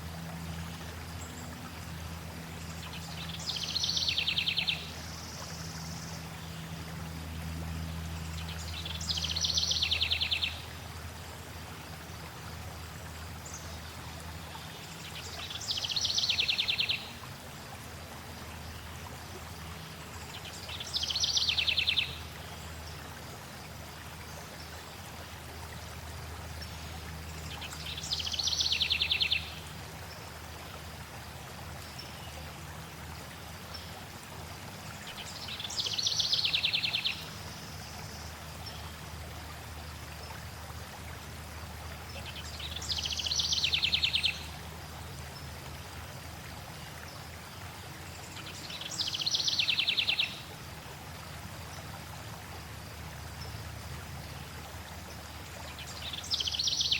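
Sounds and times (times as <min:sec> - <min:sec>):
stream flowing: 0:00.0 - 0:56.9.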